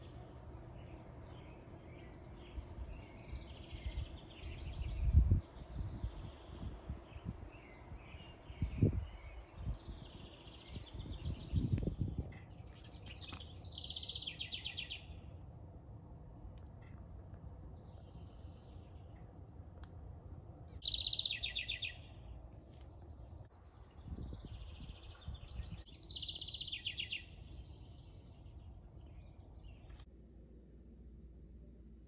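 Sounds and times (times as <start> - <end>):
small birds chirping: 0.0 - 15.4, 16.8 - 19.4, 20.7 - 30.1.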